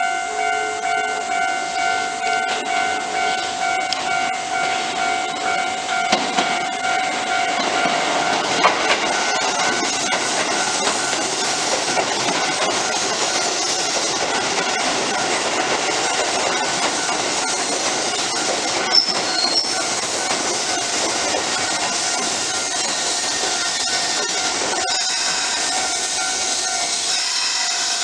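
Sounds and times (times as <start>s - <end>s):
electric train wheel and rail noise: 0.0s - 28.0s
sharp clicks of train wheels: 6.1s - 6.7s, 7.6s - 28.0s.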